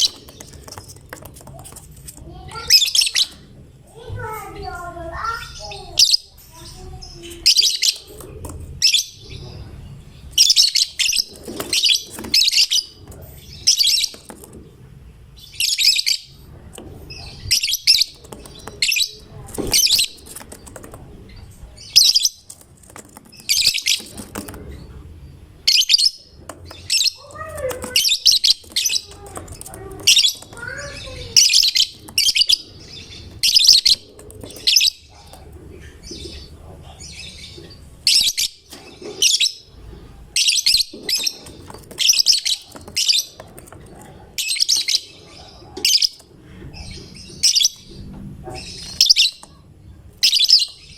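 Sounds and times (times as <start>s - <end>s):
bird high-pitched chirping: 0.0s - 14.6s, 15.3s - 50.9s.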